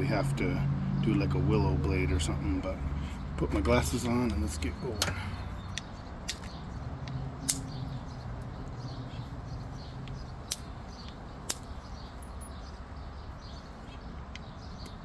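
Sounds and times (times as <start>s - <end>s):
stone knapping clicks: 5.0s - 7.8s, 10.0s - 11.8s.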